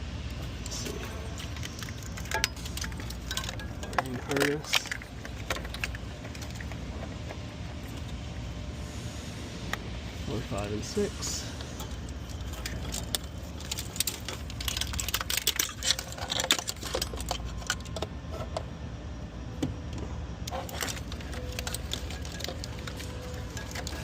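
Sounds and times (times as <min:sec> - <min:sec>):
steady low hum: 0:00.0 - 0:24.0
plastic connectors clicking and rattling: 0:00.5 - 0:07.4, 0:11.8 - 0:18.6, 0:20.5 - 0:24.0.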